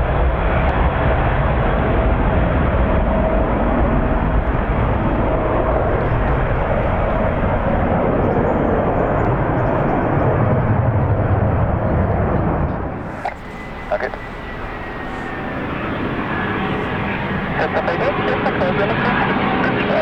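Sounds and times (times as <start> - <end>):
jet engines roaring: 0.0 - 20.0
faint steady whine: 12.8 - 20.0.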